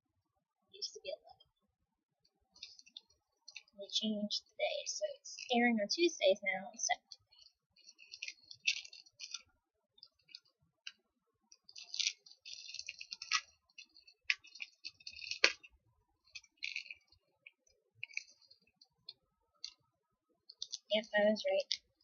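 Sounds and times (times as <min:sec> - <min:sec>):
plastic packaging crinkling: 0:07.2 - 0:10.5, 0:11.5 - 0:18.8.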